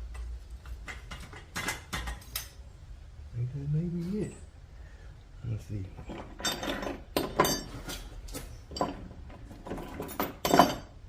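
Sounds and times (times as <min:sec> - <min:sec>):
metal clanking and clinking: 0:06.0 - 0:11.0.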